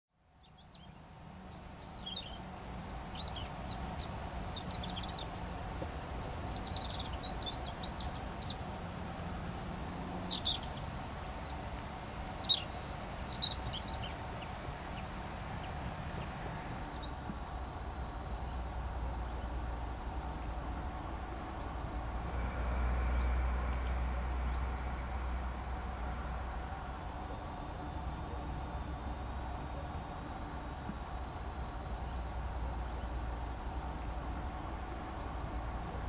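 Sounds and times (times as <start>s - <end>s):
low background rumble: 0.2s - 36.0s
high bird chirps and twitters: 6.1s - 8.7s, 9.4s - 14.2s.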